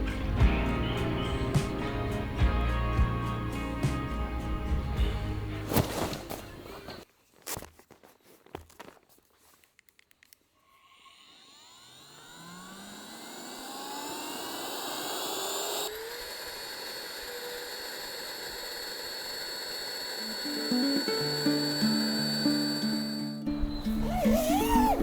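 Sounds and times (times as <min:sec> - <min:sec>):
small electric motor whining: 0:10.8 - 0:25.0
motor clicks: 0:11.2 - 0:23.2.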